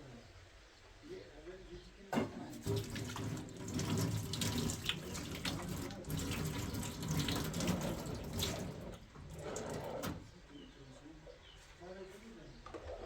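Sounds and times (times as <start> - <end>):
water running and splashing: 2.4 - 10.2.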